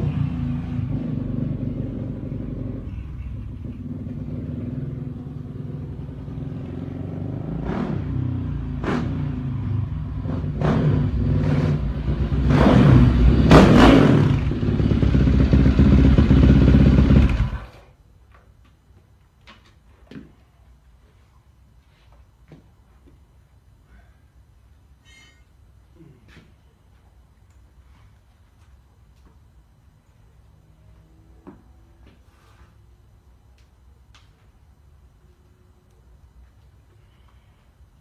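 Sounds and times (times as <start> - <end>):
dirt bike engine revving: 6.3 - 9.5, 10.1 - 17.8.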